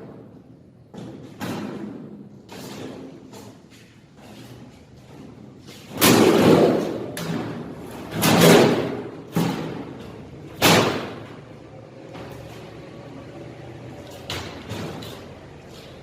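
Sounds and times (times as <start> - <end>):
heavy bangs with rattling: 6.0 - 11.5.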